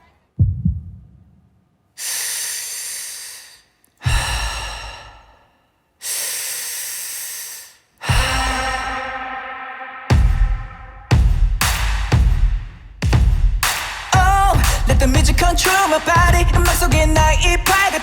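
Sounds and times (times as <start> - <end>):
deep booming bass hits: 0.4 - 1.4, 10.1 - 13.6
breathy exhales: 2.0 - 9.4.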